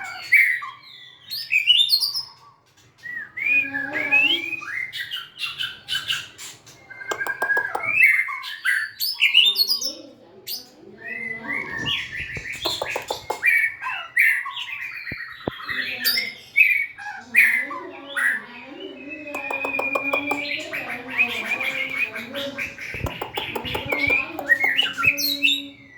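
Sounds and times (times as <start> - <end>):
bird singing whistled song: 3.0 - 6.1, 19.0 - 20.6.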